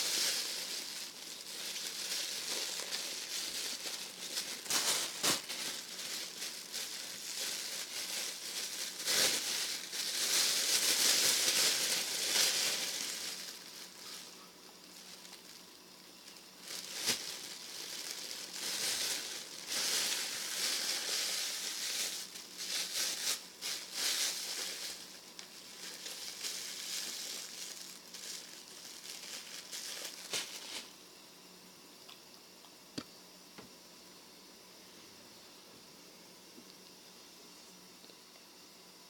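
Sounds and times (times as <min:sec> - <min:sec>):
rustling and crinkling handling noise: 0:00.0 - 0:31.0.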